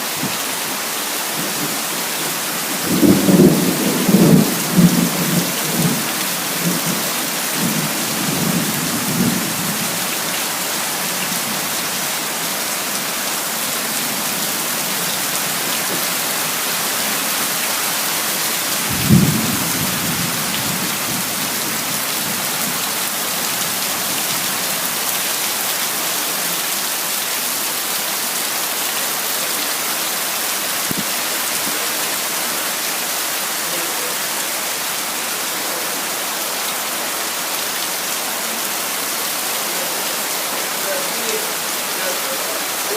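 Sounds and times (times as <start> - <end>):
heavy rain: 0.0 - 42.9
thunder rumbling: 2.8 - 7.0, 18.8 - 21.5
thunderclap: 18.9 - 21.2.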